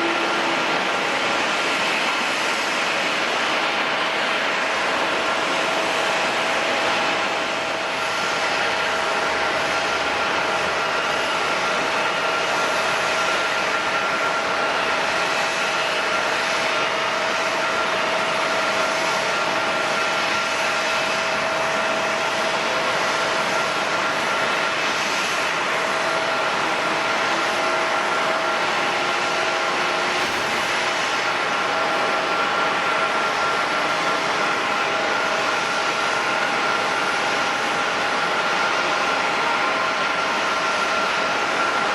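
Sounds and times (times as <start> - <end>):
jet engines rushing: 0.0 - 41.5
jet engine whine: 0.0 - 41.9.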